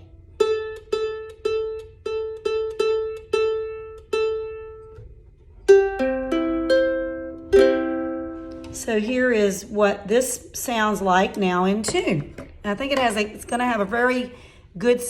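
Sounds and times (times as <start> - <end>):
ukulele rolled chord: 0.0 - 8.8
ukulele string plucked: 0.0 - 9.0.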